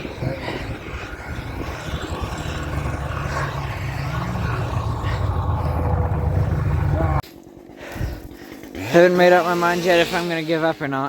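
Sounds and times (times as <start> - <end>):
engine droning low: 0.0 - 8.3.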